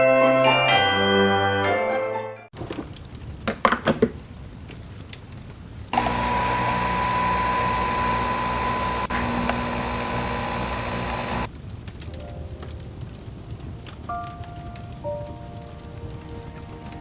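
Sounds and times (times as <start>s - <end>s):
electric motor whine: 6.0s - 11.5s.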